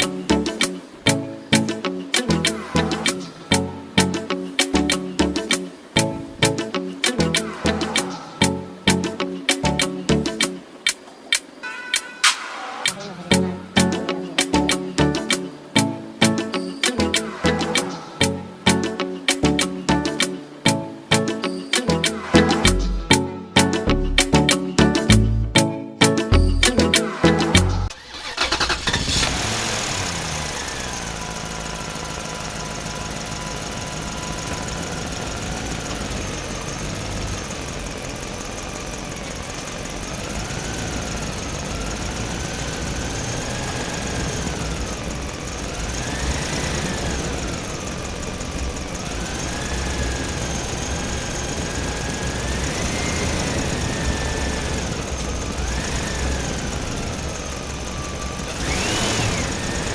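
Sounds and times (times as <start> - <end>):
small motor whining: 28.1 - 59.9.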